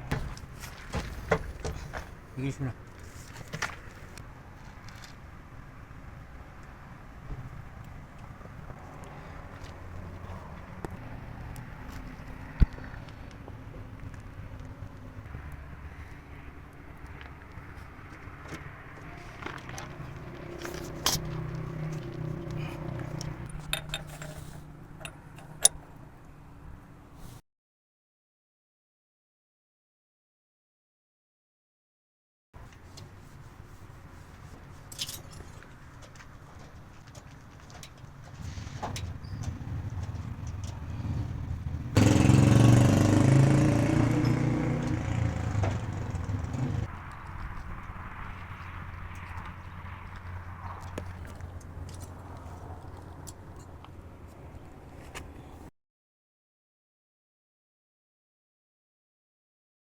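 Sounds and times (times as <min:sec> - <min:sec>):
vehicle engine running loudly: 0:38.5 - 0:46.9.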